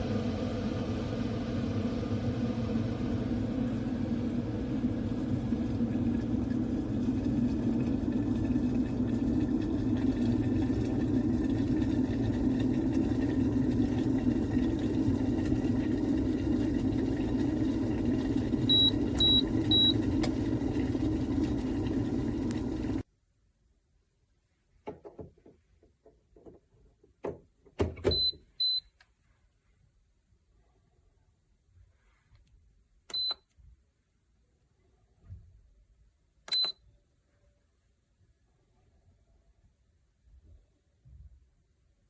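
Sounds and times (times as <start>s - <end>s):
electric kettle heating water: 0.0s - 23.1s
kettle beeps: 2.8s - 23.0s, 28.1s - 28.9s, 33.1s - 33.4s, 36.5s - 36.8s.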